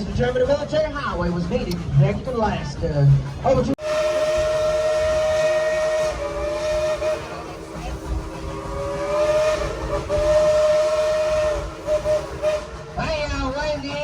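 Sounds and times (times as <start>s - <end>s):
steam locomotive whistle: 3.8s - 14.0s.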